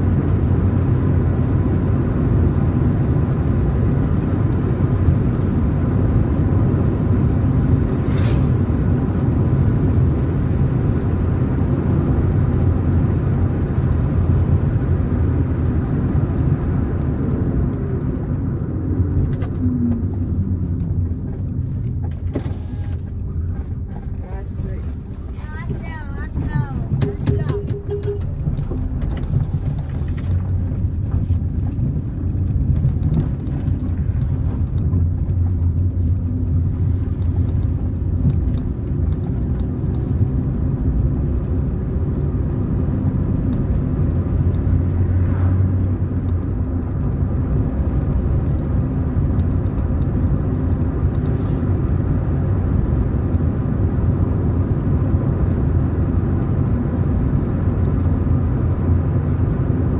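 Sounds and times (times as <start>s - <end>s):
car engine rumble: 0.0s - 59.9s
tyre noise on road: 0.0s - 59.9s.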